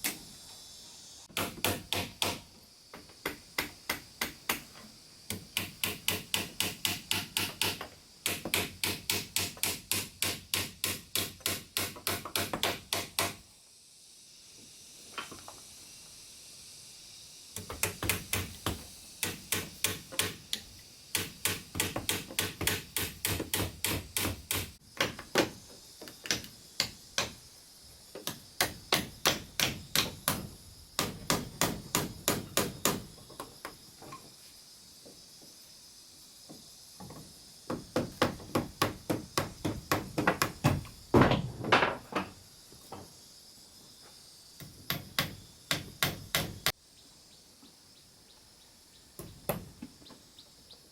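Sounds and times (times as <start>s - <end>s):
steady high hiss: 0.0s - 50.9s
hammer striking wood: 1.3s - 2.5s, 5.3s - 13.4s, 17.6s - 20.5s, 21.2s - 25.6s, 28.2s - 33.1s, 37.7s - 42.3s, 44.9s - 46.7s.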